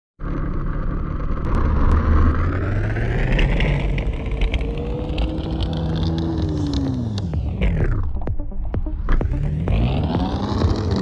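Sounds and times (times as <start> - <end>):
road noise: 0.2 - 11.0
vehicle engine rumble: 0.2 - 11.0.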